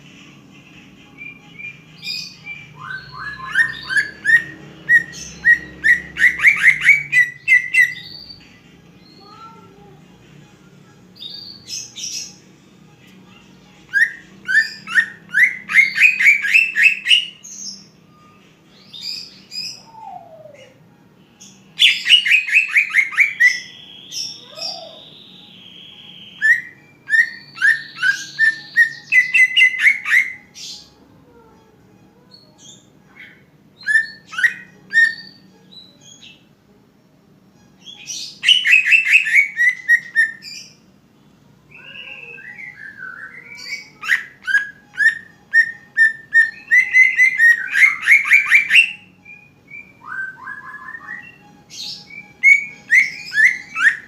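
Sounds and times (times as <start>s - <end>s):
bird singing whistled notes: 1.2s - 8.4s, 13.9s - 20.8s, 21.4s - 30.9s, 32.6s - 36.4s, 37.8s - 40.8s, 41.7s - 54.0s.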